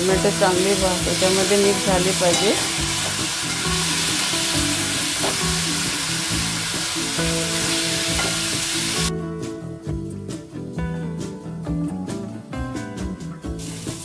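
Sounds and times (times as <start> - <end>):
onions sizzling in oil: 0.0 - 9.1, 13.6 - 14.0
background music: 0.0 - 14.0.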